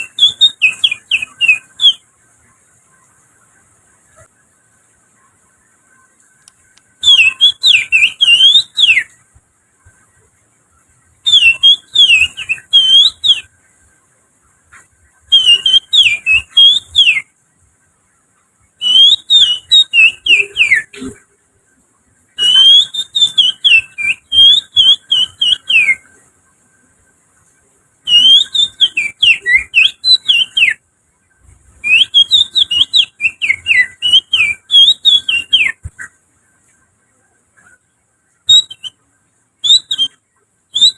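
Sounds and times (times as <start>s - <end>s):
finger whistling birdsong: 0.0s - 2.1s, 6.4s - 9.1s, 11.2s - 13.5s, 14.7s - 17.3s, 18.8s - 21.2s, 22.4s - 26.1s, 28.0s - 30.8s, 31.8s - 35.9s, 38.5s - 39.0s, 39.6s - 40.9s.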